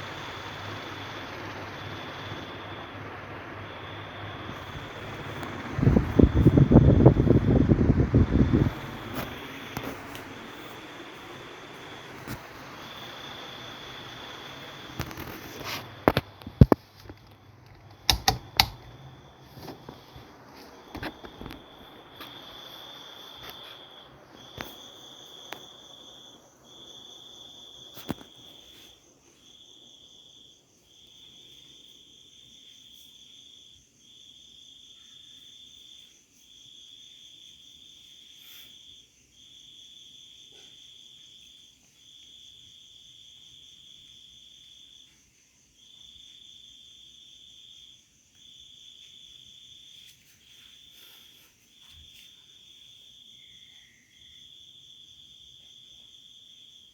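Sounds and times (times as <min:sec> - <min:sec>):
cricket-like insect trilling: 0:00.0 - 0:17.4, 0:20.4 - 0:50.0, 0:50.8 - 0:56.9
sharp clicks: 0:16.0 - 0:19.1.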